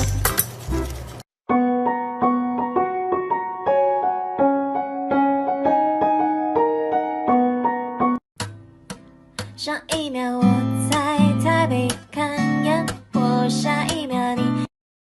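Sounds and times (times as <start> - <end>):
gentle piano melody: 1.5 - 8.2.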